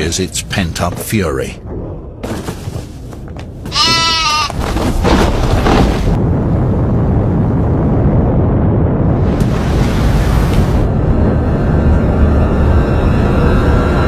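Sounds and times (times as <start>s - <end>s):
avalanche rumble: 0.0s - 14.0s
animal bleat: 3.7s - 4.6s.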